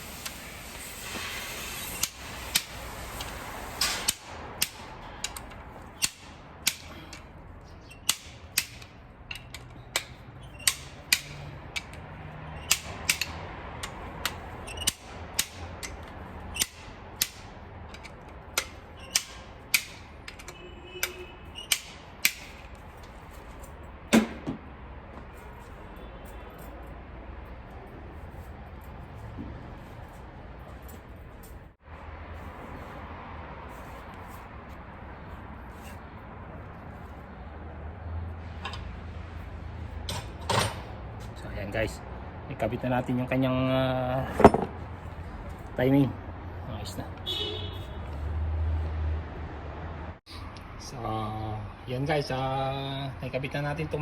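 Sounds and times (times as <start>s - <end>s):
ratchet wrench clicking: 0.0s - 7.3s, 7.9s - 22.8s.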